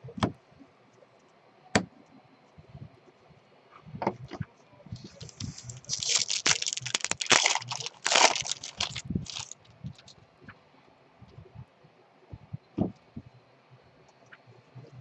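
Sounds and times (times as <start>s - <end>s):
plastic wrapper tearing and crinkling: 5.0s - 10.1s.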